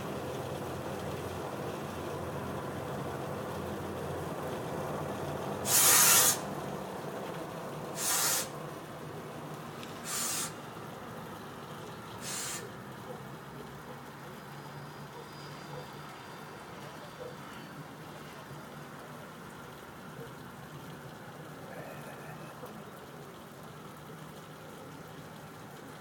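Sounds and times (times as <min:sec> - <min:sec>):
railway machinery rumbling: 0:00.0 - 0:23.3
short hisses: 0:05.7 - 0:06.4, 0:08.0 - 0:08.6, 0:10.0 - 0:10.6, 0:12.2 - 0:12.7.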